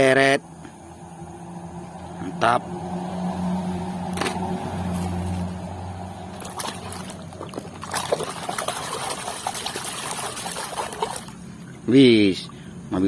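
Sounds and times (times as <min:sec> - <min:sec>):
water sloshing and splashing: 0:04.9 - 0:11.9.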